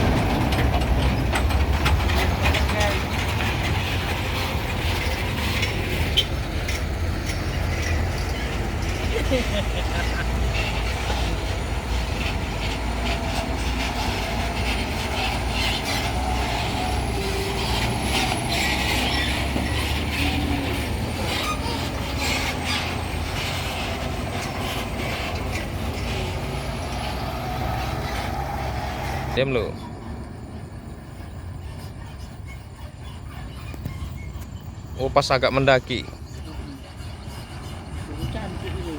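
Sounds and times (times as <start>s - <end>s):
truck knocking and rattling: 0.0s - 30.3s
truck engine running: 0.0s - 32.2s.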